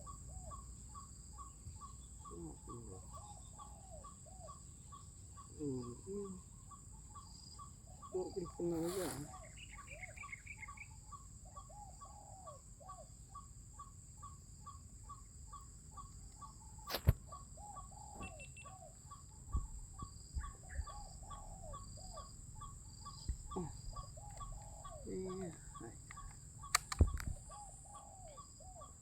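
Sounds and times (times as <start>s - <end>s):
high insect drone: 0.0s - 29.0s
doves cooing: 5.4s - 6.5s, 8.0s - 10.8s, 16.9s - 29.0s
fast ticking call: 23.1s - 27.4s.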